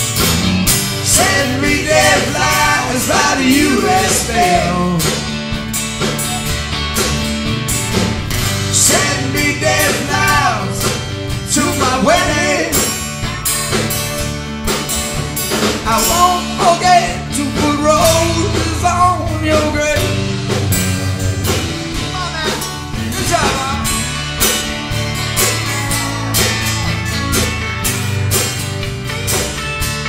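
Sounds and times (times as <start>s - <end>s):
live rock band playing: 0.0s - 30.0s
sliding lead guitar line: 0.0s - 30.0s.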